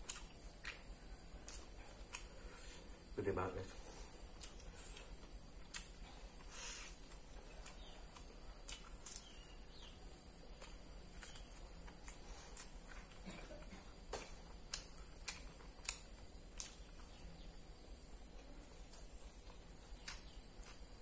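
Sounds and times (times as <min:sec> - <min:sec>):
person chewing crispy food: 0:00.0 - 0:03.1, 0:03.9 - 0:21.0
faint steady hiss: 0:00.0 - 0:21.0.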